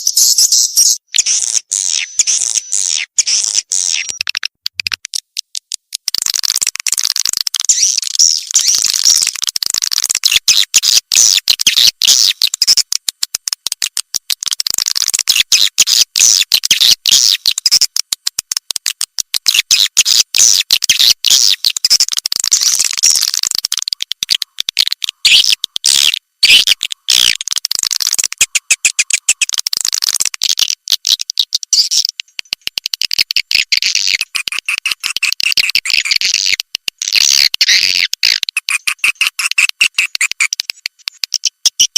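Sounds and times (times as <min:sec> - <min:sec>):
swiftlets twittering and chirping: 0:00.0 - 0:12.9, 0:33.4 - 0:41.9.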